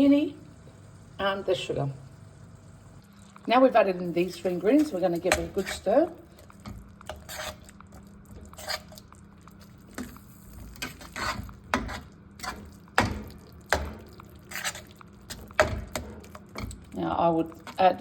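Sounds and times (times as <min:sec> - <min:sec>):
spoon scraping and knocking a pot: 0:06.6 - 0:07.7, 0:10.8 - 0:16.8.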